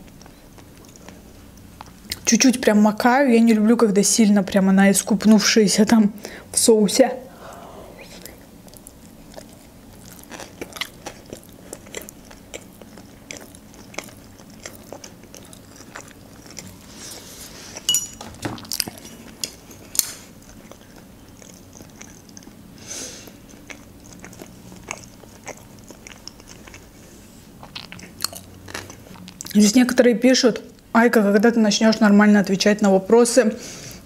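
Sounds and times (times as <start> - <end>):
wet chewing clicks and smacks: 0.0 - 2.3, 8.3 - 16.9, 20.0 - 22.6, 23.3 - 26.9, 27.6 - 29.6.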